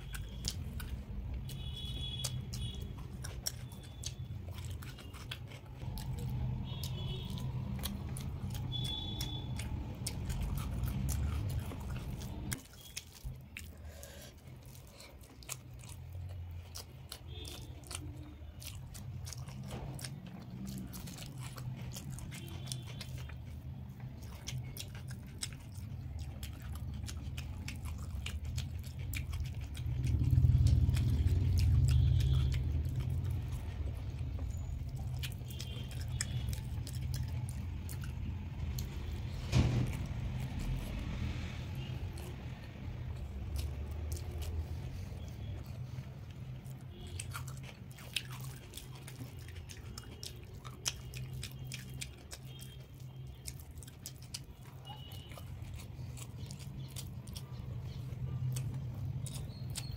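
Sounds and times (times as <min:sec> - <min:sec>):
wet mouth clicks and lip smacks: 0:00.0 - 0:13.7, 0:42.1 - 0:59.9
chewing rice and curry: 0:00.0 - 0:59.9.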